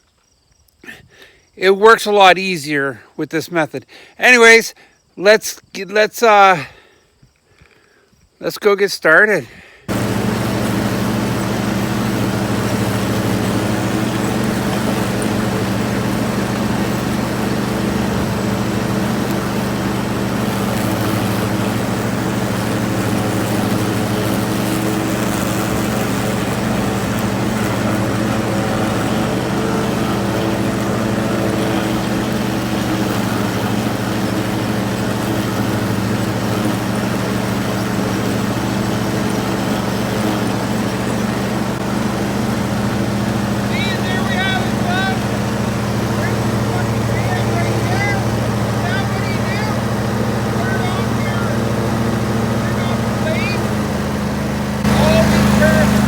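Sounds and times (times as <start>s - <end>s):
lawn tractor engine running: 9.9s - 56.0s.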